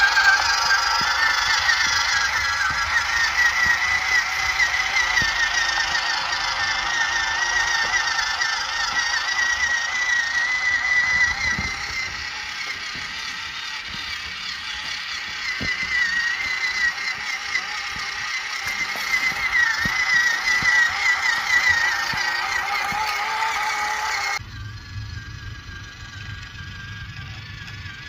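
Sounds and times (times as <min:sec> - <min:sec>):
toy truck motor whining: 0:00.0 - 0:28.0.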